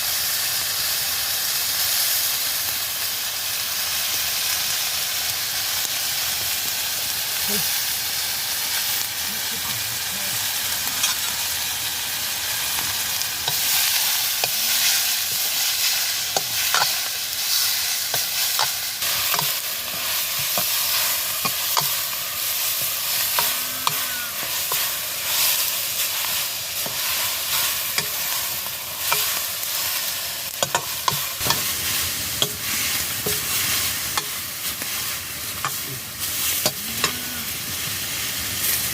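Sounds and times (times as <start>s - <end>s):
vegetables sizzling in a pan: 0.0s - 38.9s
utensil scraping a pan: 10.9s - 11.4s.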